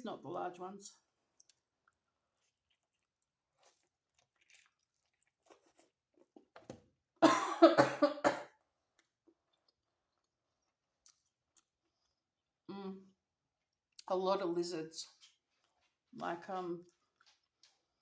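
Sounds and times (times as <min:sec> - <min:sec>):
faint chewing: 0:01.2 - 0:06.6, 0:08.9 - 0:12.6, 0:15.1 - 0:16.2, 0:16.8 - 0:18.0
woman coughing: 0:07.2 - 0:08.5.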